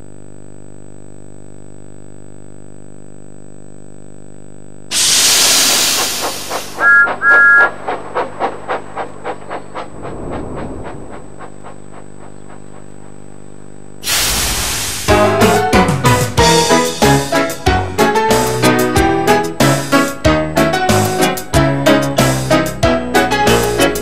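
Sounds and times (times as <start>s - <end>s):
steam escaping: 4.9s - 7.6s, 14.0s - 15.6s
two-note steam whistle toots: 4.9s - 7.8s
steam locomotive chuffing: 4.9s - 13.4s, 14.0s - 20.2s
steady low hum: 5.5s - 14.0s.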